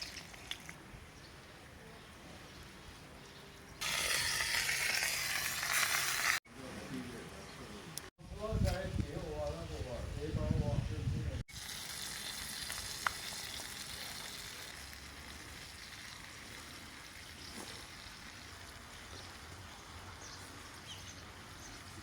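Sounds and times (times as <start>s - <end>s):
chicken sizzling: 3.8s - 6.4s, 11.5s - 19.4s.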